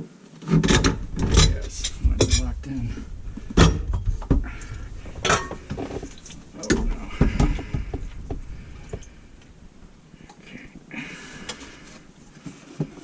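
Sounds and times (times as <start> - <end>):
scraping rustle: 0.3 - 9.2
plumbing parts and tools clattering: 0.4 - 9.5.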